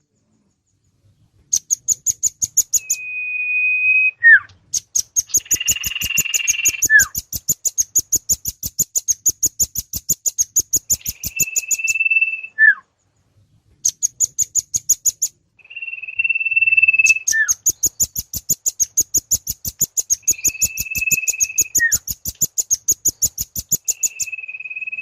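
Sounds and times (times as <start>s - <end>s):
long whistles with falling note: 2.8s - 4.5s, 11.2s - 12.8s, 15.6s - 17.5s, 23.8s - 25.0s
short buzzy bird chatter: 4.8s - 12.1s, 16.0s - 25.0s
fast sharp high bird chips: 4.8s - 12.5s, 13.9s - 25.0s.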